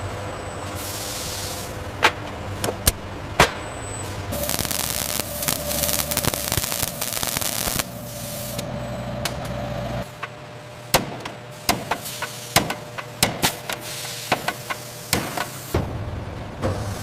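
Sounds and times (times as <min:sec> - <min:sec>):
machinery hum: 0:00.0 - 0:17.0
loud hissing crackle: 0:04.3 - 0:08.7.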